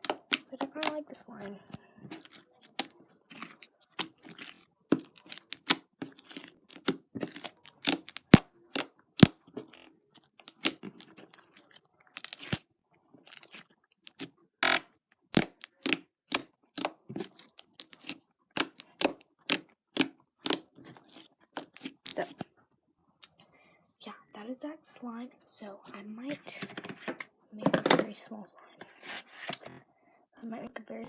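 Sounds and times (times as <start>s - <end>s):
slime squished by hand: 0.0s - 12.6s, 13.2s - 14.8s, 15.4s - 22.5s.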